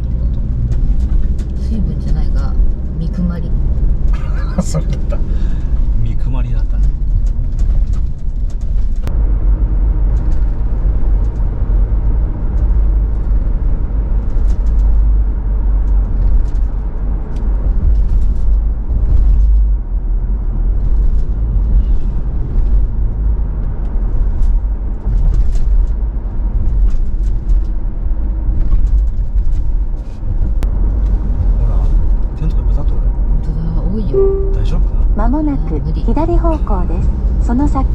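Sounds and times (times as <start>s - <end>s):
car engine and tyre rumble: 0.0s - 37.9s.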